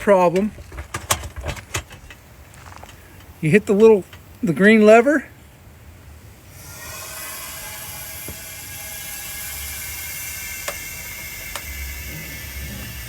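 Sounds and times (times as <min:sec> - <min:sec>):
air jack hissing and whirring: 0:06.2 - 0:13.0.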